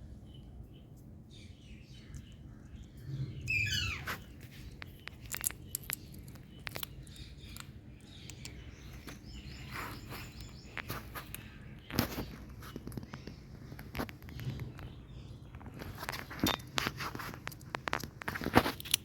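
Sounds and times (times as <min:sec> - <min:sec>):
parrot calling: 0:03.5 - 0:04.3.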